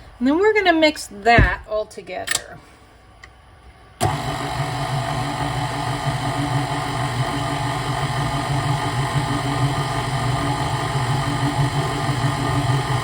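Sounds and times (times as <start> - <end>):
electric mixer motor humming: 4.0 - 13.0.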